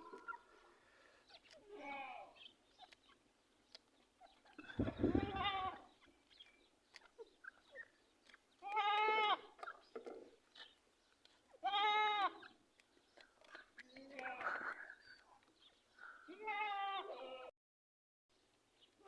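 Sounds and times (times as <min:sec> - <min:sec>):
animal bleating: 0:04.6 - 0:06.0, 0:08.6 - 0:09.6, 0:11.6 - 0:12.5, 0:13.8 - 0:15.0, 0:16.3 - 0:17.5.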